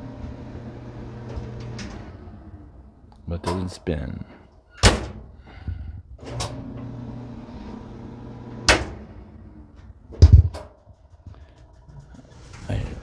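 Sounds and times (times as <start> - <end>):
clothes dryer motor hum: 0.0 - 13.0
dryer switch click: 8.7 - 9.0
heavy thump: 10.2 - 10.6.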